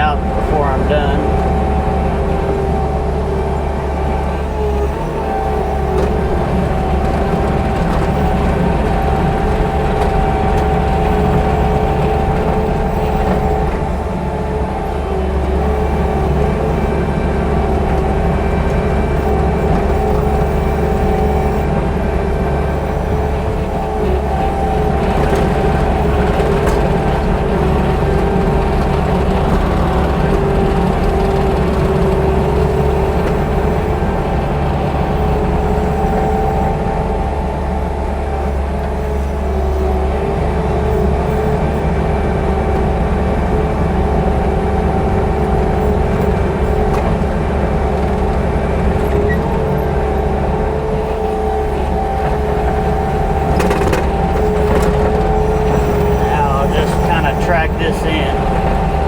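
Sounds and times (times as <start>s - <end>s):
steady whine: 0.0s - 16.4s, 51.7s - 59.0s
diesel engine running: 0.0s - 59.0s.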